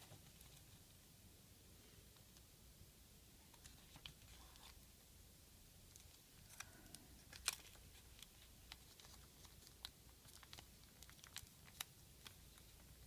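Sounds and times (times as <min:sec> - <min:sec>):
paper crinkling while folded: 0:05.9 - 0:13.0.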